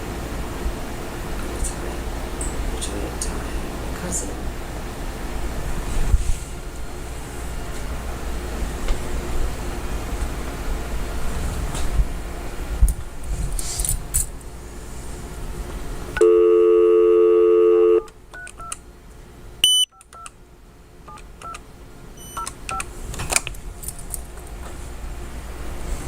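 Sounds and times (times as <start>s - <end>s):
telephone dial tone: 16.2s - 18.7s
keypad tones: 16.2s - 18.8s, 19.6s - 20.3s, 21.1s - 21.6s, 22.2s - 22.9s
short high beep: 19.6s - 20.0s.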